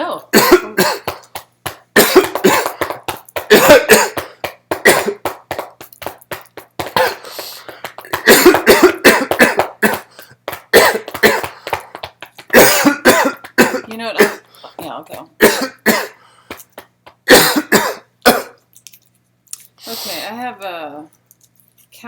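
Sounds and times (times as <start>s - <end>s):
person coughing: 0.3s - 1.3s, 2.0s - 5.4s, 6.8s - 11.8s, 12.5s - 16.2s, 17.2s - 18.6s
throat clearing: 3.5s - 5.2s, 8.2s - 10.1s, 10.7s - 11.6s, 12.5s - 14.5s.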